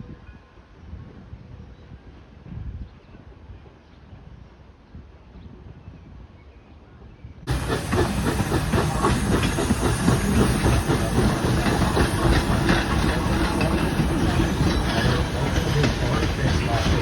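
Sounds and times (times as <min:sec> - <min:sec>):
steam train hissing: 0:07.5 - 0:17.0.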